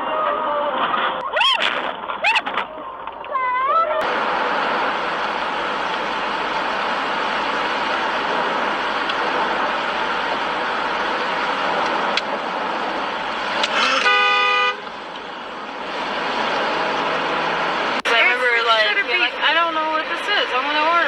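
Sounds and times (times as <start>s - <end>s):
traffic road noise: 0.0s - 21.0s
car horn: 13.6s - 15.5s.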